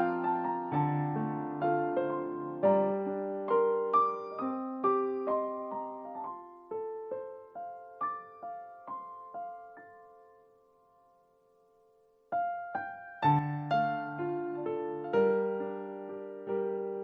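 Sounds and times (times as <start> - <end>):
soft solo piano: 0.0 - 17.0.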